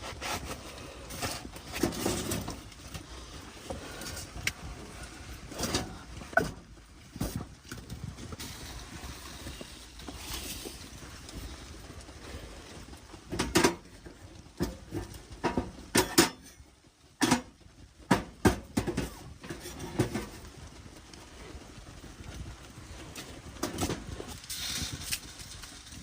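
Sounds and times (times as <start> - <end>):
sharp knocks and clatters: 13.2 - 20.6.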